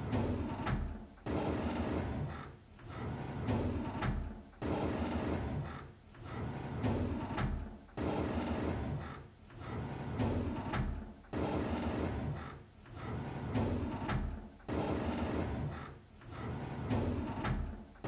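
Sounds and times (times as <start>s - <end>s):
drawer sliding on runners: 2.9s - 5.5s, 6.2s - 17.8s.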